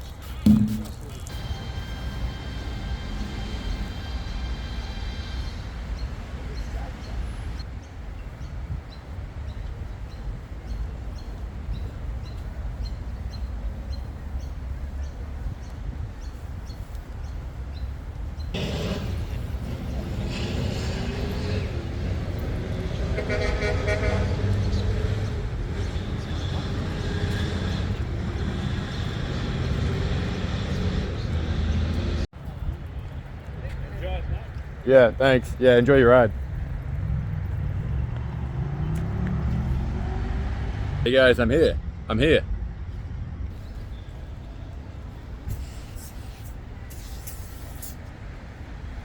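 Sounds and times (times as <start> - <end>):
horn sounding: 0.4 - 7.4, 18.6 - 30.9.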